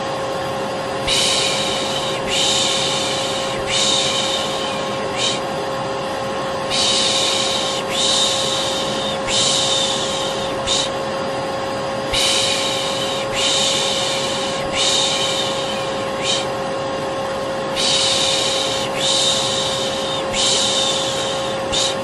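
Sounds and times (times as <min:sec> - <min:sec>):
vacuum cleaner running: 0:00.0 - 0:22.0
person shushing: 0:01.1 - 0:05.5, 0:06.7 - 0:11.0, 0:12.1 - 0:16.5, 0:17.8 - 0:22.0.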